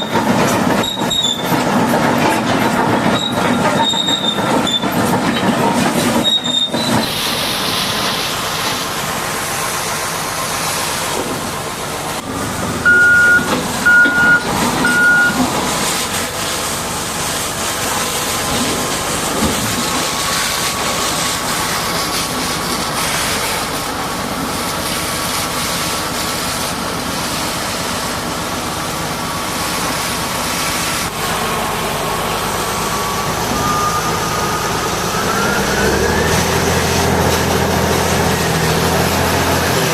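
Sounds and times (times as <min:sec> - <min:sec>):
heavy earthmoving equipment running: 0:00.0 - 0:39.9
backup alarm beeping: 0:12.8 - 0:15.4.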